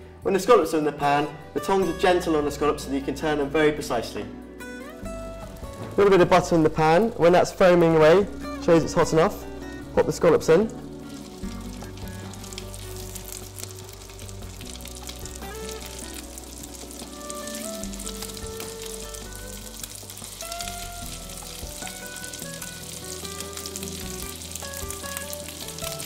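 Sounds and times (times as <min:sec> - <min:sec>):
soft background music: 0:00.0 - 0:26.0
scallops sizzling in butter: 0:04.8 - 0:06.0, 0:09.4 - 0:26.0.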